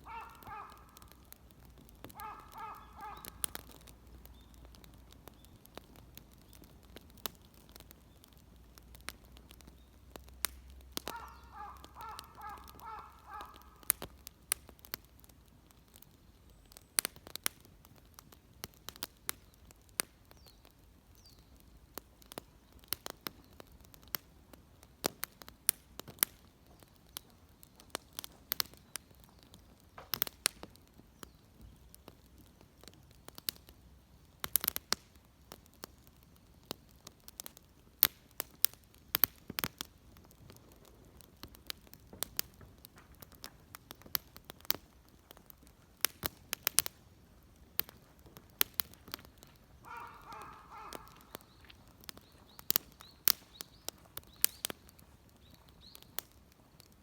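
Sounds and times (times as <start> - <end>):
crow cawing: 0.0 - 1.1, 2.2 - 3.4, 11.1 - 13.9, 49.8 - 51.3
wood fire crackling: 0.0 - 57.0.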